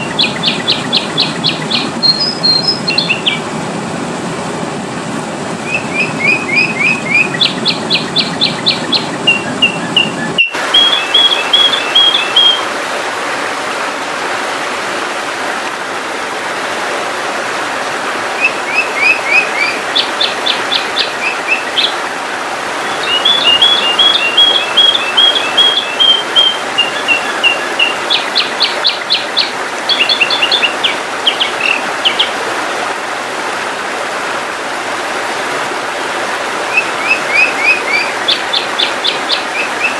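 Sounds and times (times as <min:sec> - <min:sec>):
bird chirps and whistles: 0:00.1 - 0:03.4, 0:05.6 - 0:12.6, 0:23.0 - 0:29.2.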